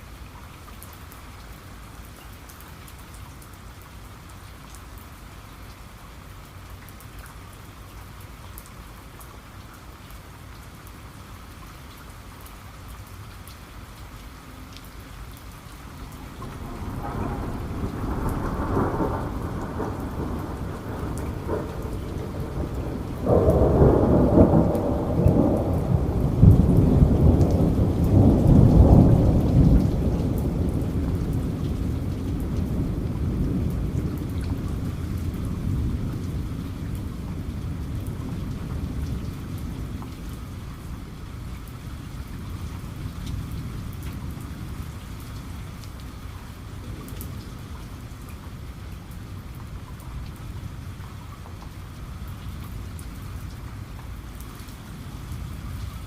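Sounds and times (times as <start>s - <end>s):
steady rain falling: 0.0s - 56.0s
thunder rumbling: 15.9s - 45.6s.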